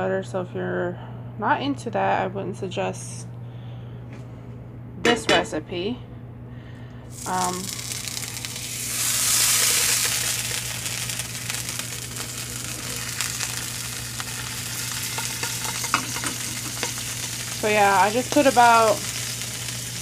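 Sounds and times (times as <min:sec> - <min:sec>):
butter sizzling in a pan: 0:07.1 - 0:20.0.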